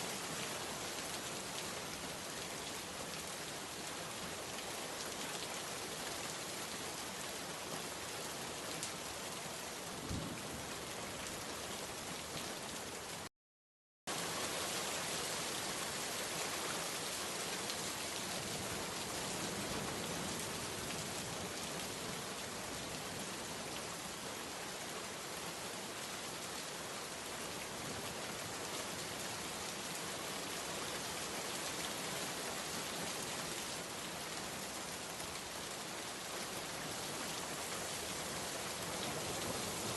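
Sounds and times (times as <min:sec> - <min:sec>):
heavy rain falling: 0:14.1 - 0:39.9.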